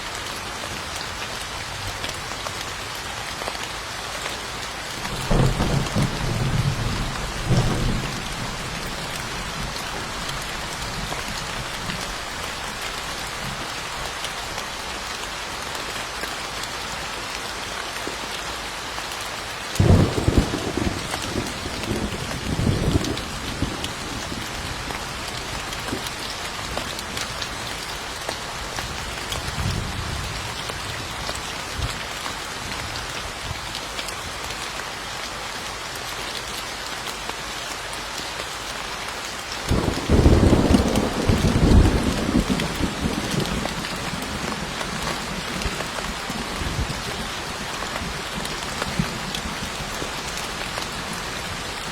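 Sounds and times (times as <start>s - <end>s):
steady rain falling: 0.0s - 51.9s
thunder rumbling: 5.0s - 12.3s, 19.8s - 24.5s, 39.7s - 47.2s.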